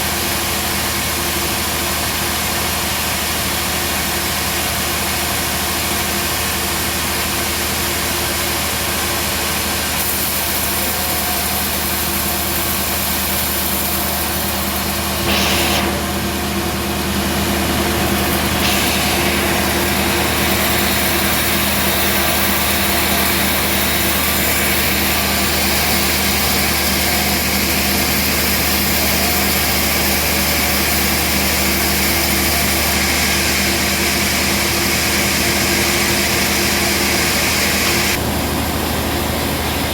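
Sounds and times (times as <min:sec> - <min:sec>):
sawmill motor humming: 0:00.0 - 0:39.9
hiss of sawing: 0:08.8 - 0:38.2.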